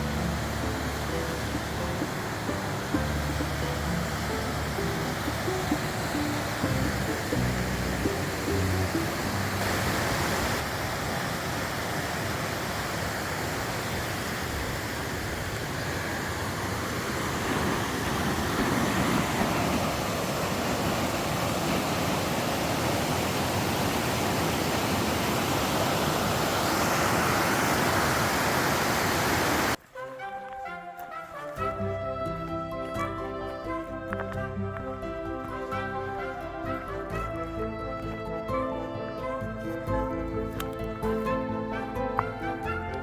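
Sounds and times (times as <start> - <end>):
river water rushing: 0.0 - 31.8, 32.5 - 43.0.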